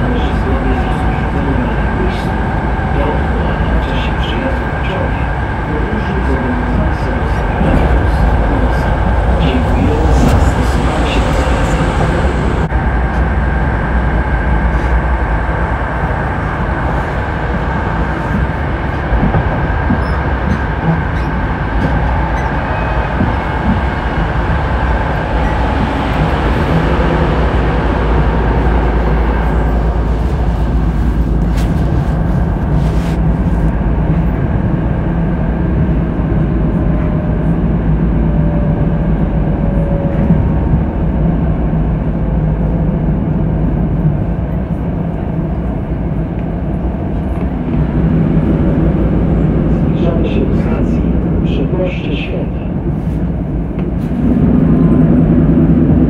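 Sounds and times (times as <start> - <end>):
train rumble from inside car: 0.0 - 56.0.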